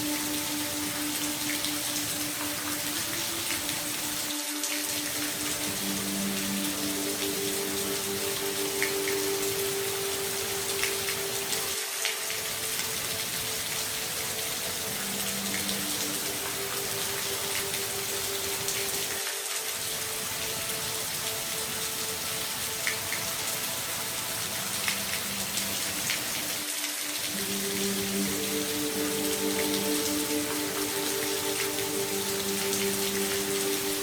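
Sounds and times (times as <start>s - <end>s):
raindrop ticks: 0.0s - 19.2s, 20.0s - 26.6s
rain falling: 0.0s - 34.0s.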